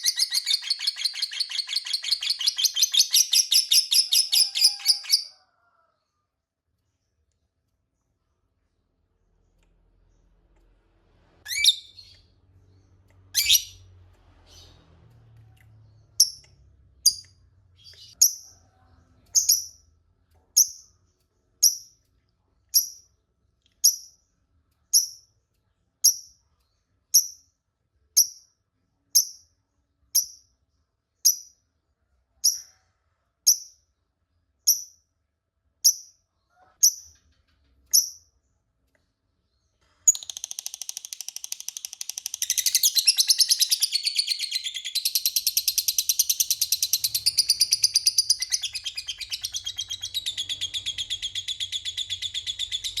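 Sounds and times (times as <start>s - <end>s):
high sharp bird chirps: 0.0s - 5.3s, 11.4s - 14.8s, 40.1s - 53.0s
lovebird calling: 0.0s - 5.3s, 13.4s - 13.8s, 41.7s - 53.0s.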